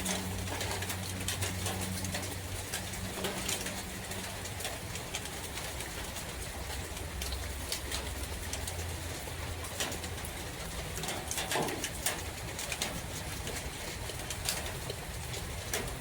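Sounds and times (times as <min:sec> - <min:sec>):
sharp water drips: 0:00.0 - 0:16.0.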